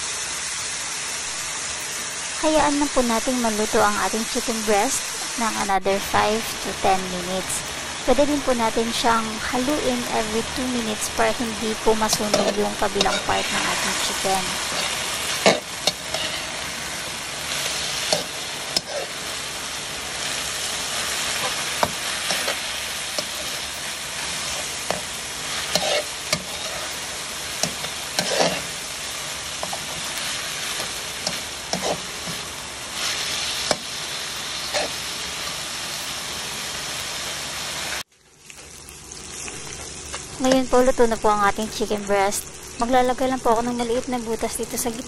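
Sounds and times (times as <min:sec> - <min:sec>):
food sizzling in oil: 0:00.0 - 0:45.0
metal spatula scraping a pan: 0:12.1 - 0:16.7, 0:17.6 - 0:19.2, 0:21.3 - 0:23.7, 0:24.4 - 0:28.8, 0:29.7 - 0:33.8.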